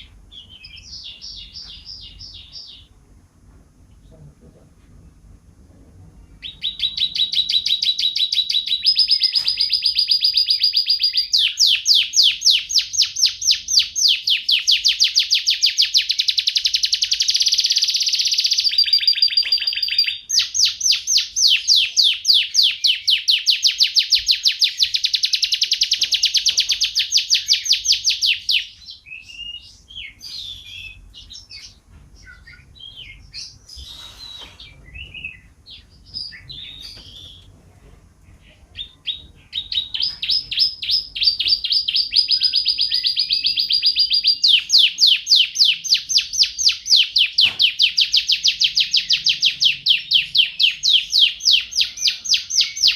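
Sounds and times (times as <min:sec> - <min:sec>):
canary singing trills: 0:00.0 - 0:03.0, 0:06.2 - 0:37.5, 0:38.3 - 0:52.9
soft bird chirps: 0:06.2 - 0:37.5.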